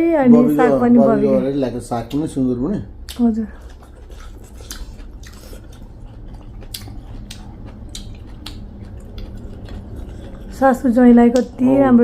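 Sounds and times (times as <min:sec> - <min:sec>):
person chewing food: 0:03.0 - 0:11.6
wet mouth clicks and smacks: 0:06.6 - 0:10.5.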